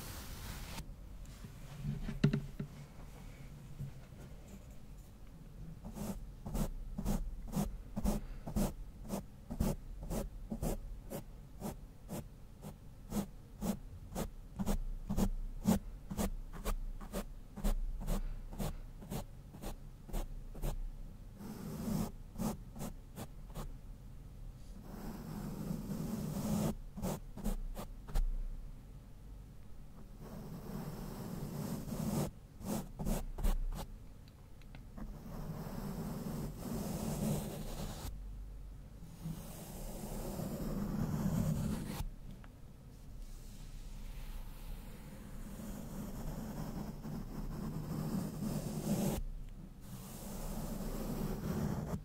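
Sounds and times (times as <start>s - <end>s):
brush stroking a microphone: 0.0s - 2.2s.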